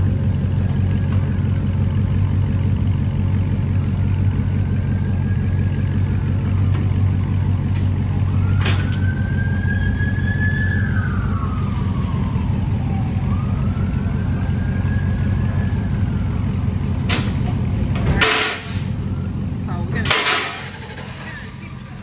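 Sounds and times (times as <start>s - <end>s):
car engine idling: 0.0s - 22.0s
faint siren wailing: 0.0s - 22.0s.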